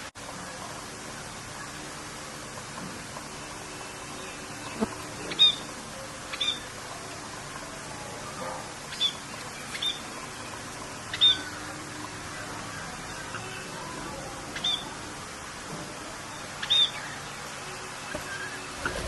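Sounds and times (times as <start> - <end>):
rain hissing: 0.0 - 19.0
birds chirping: 3.6 - 15.2, 16.0 - 19.0.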